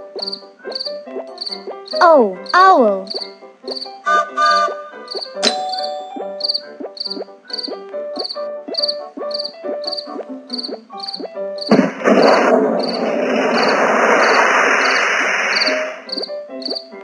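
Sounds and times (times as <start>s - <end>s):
cartoon music with dipping notes: 0.0s - 12.1s, 15.9s - 17.0s
cricket-like chirps: 0.2s - 4.0s, 5.1s - 11.8s, 13.7s - 16.9s.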